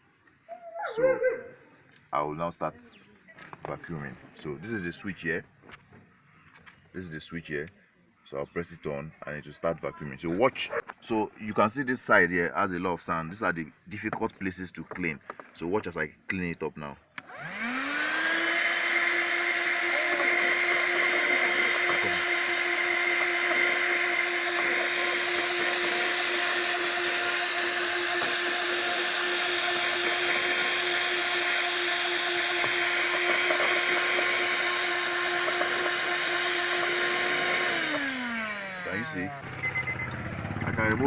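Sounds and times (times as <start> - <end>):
handheld vacuum cleaner running: 17.2 - 41.0.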